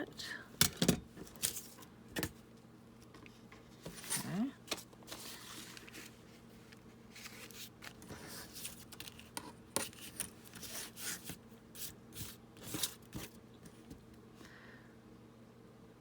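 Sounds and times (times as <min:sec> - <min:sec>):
paper rustling: 0:03.6 - 0:13.9.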